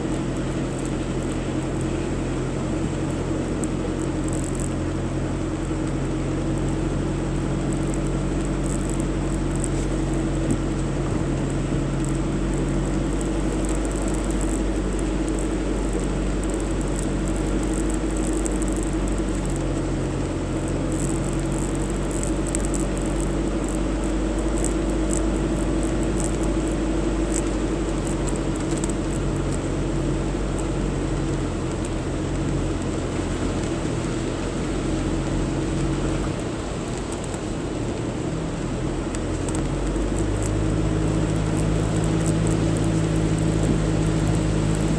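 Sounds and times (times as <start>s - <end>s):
low engine hum: 0.0s - 44.9s
light ticks: 3.1s - 4.8s, 7.6s - 34.8s, 39.0s - 44.9s.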